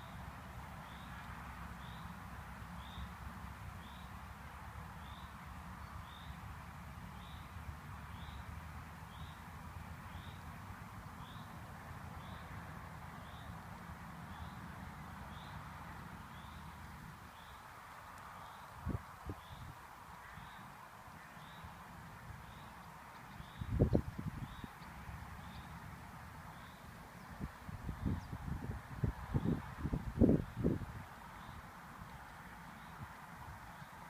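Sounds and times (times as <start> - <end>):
wind rumble on microphone: 18.7 - 20.6, 23.3 - 25.7, 27.2 - 33.7.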